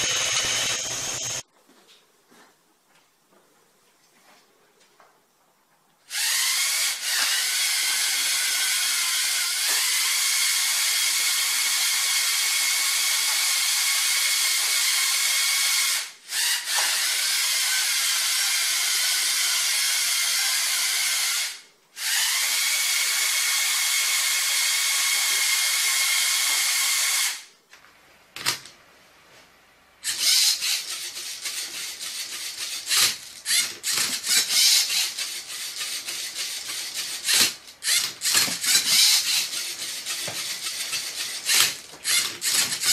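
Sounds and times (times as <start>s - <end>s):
motors and gears whirring: 0.0s - 1.4s, 6.1s - 27.4s, 30.0s - 42.9s
motors whirring and clicking bursts: 0.0s - 1.4s, 30.0s - 42.9s.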